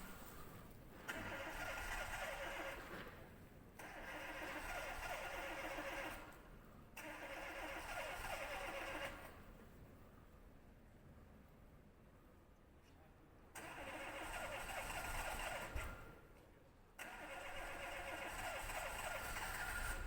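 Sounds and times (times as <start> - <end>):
car starter cranking engine: 1.1 - 3.1, 3.8 - 6.3, 7.0 - 9.3, 13.6 - 16.0, 17.0 - 20.0.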